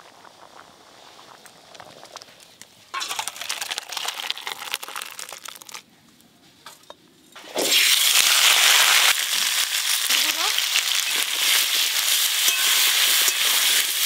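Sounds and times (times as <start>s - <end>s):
crackling hiss of cooking: 0.0s - 5.8s, 7.4s - 14.0s
food sizzling in hot oil: 3.0s - 5.3s, 7.4s - 14.0s.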